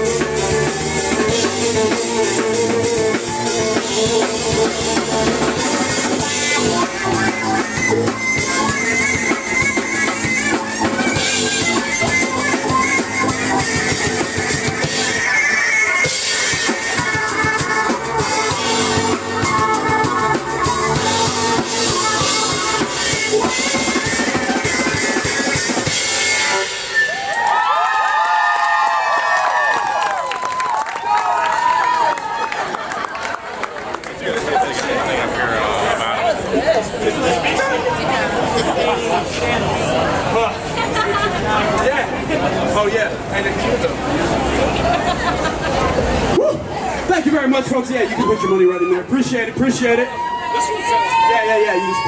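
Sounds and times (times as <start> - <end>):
keyboard: 0.0 - 27.1
drum kit beat: 0.0 - 27.5
live band playing up-tempo song: 0.0 - 29.1, 29.9 - 52.0
crowd whooping: 23.1 - 33.9, 44.4 - 47.0, 48.0 - 49.2, 49.8 - 52.0.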